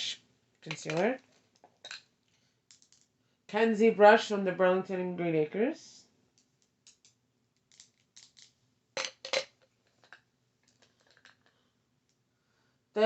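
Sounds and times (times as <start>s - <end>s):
makeup brushes clicking and tapping: 0.6s - 1.7s.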